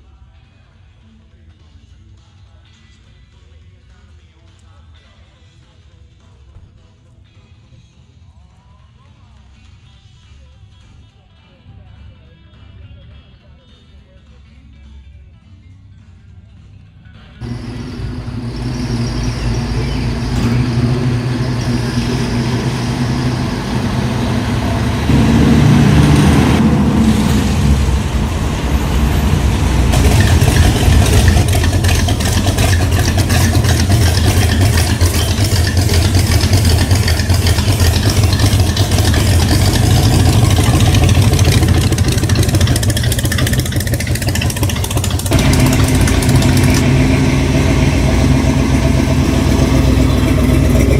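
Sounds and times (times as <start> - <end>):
car engine rumbling: 17.4 - 50.9.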